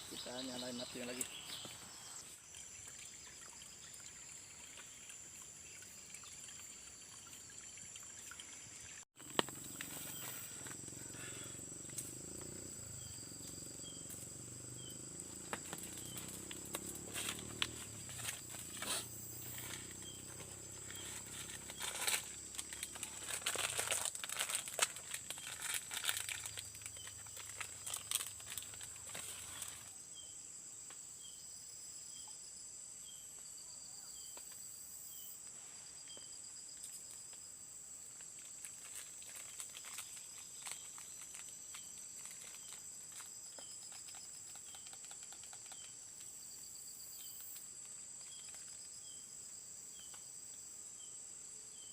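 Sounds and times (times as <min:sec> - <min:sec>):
insects droning: 0:00.0 - 0:51.9
dry leaves and twigs rustling: 0:09.2 - 0:12.6, 0:15.0 - 0:30.0, 0:38.1 - 0:45.9.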